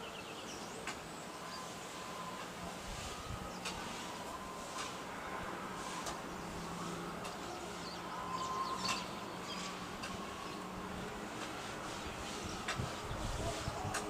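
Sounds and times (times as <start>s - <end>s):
birds chirping: 0.0s - 2.4s, 6.2s - 11.1s.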